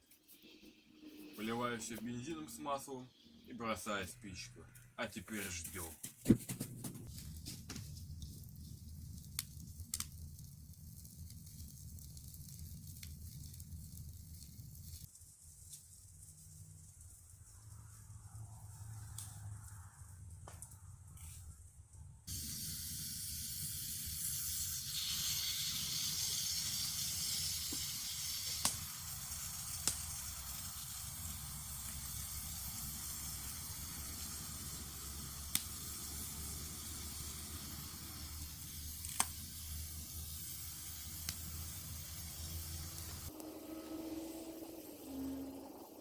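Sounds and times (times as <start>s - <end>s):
fire extinguisher spraying hiss: 22.3s - 46.0s.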